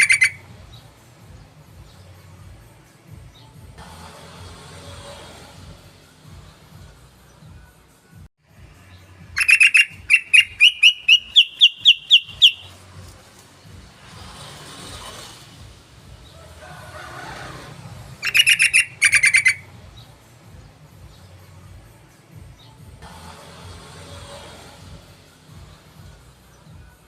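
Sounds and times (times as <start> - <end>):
bird chattering: 0.0 - 0.4, 9.4 - 12.7, 18.2 - 19.7
bird calling sharp notes: 0.0 - 0.5, 9.4 - 12.9, 18.2 - 19.7.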